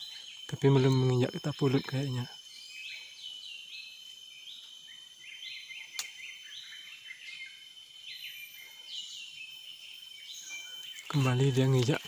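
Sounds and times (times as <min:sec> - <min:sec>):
high insect whine: 0:00.0 - 0:12.0
songbirds chirping: 0:00.0 - 0:12.0
sharp click: 0:05.9 - 0:06.2.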